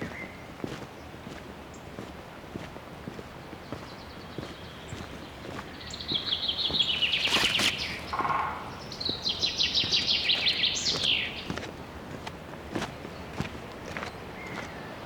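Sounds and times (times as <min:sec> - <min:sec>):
footsteps on trail: 0:00.0 - 0:14.9
songbird trilling: 0:04.1 - 0:11.6.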